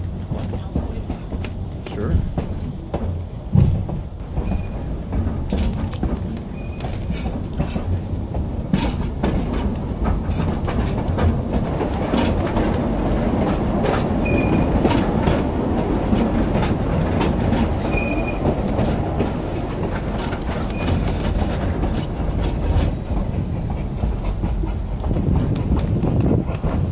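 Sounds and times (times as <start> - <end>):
train rumble: 0.0 - 26.9
wheels clicking over rail joints: 0.0 - 26.9
wheel squeals: 4.4 - 4.9, 6.5 - 7.8, 14.2 - 14.9, 17.6 - 18.6, 20.6 - 21.5.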